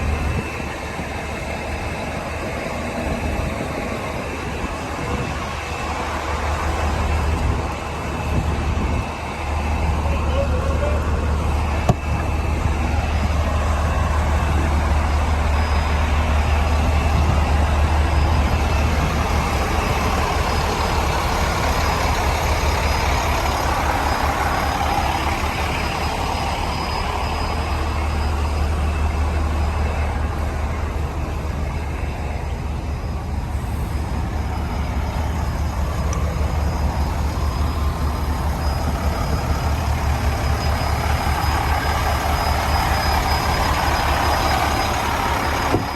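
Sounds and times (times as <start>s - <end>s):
diesel truck engine humming: 0.0s - 45.9s.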